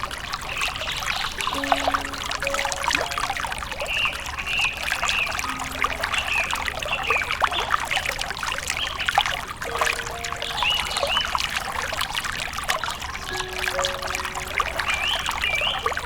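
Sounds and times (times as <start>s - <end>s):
water trickling and burbling: 0.0s - 16.0s.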